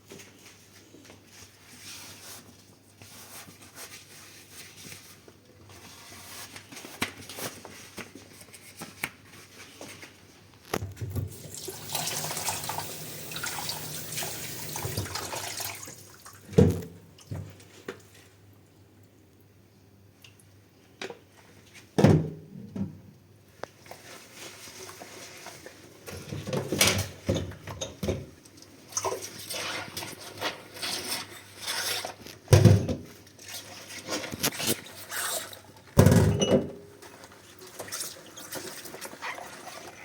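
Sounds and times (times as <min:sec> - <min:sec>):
tap running: 0:11.1 - 0:15.4.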